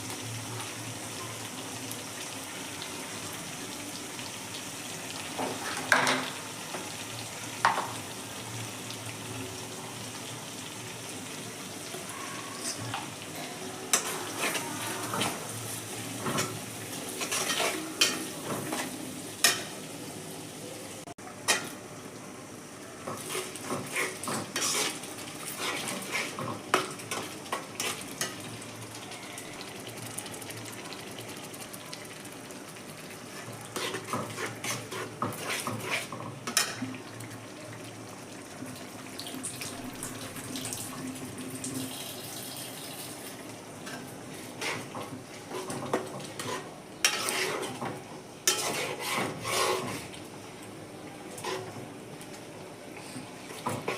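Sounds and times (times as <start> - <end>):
food sizzling: 0.0 - 53.9
metal spatula scraping pan: 17.2 - 19.7, 23.2 - 26.5, 33.3 - 36.8, 44.5 - 50.1, 51.4 - 51.8.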